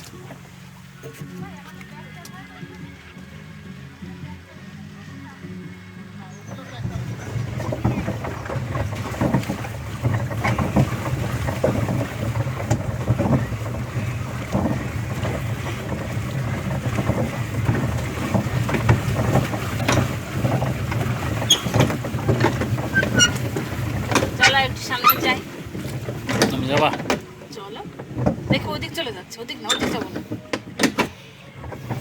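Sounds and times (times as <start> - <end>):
boat knocks and splashes: 0.0 - 4.5, 6.3 - 32.0
wind rumble on microphone: 6.6 - 27.2.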